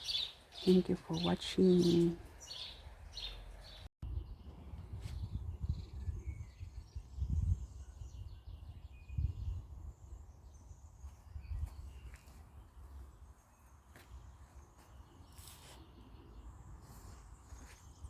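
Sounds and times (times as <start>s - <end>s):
wind buffeting microphone: 4.0s - 13.4s.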